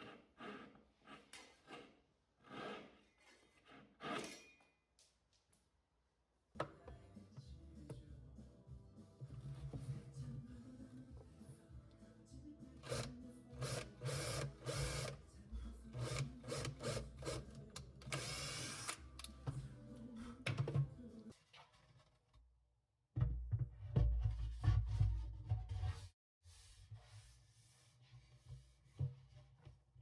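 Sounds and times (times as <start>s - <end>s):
quiet background music: 6.5s - 22.0s.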